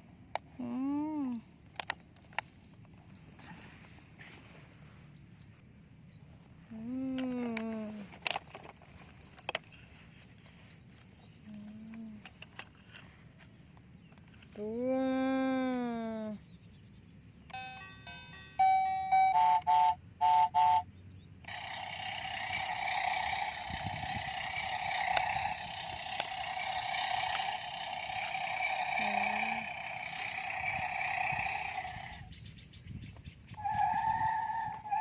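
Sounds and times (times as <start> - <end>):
toy short beeping notes: 17.5 - 20.8, 33.6 - 35.0.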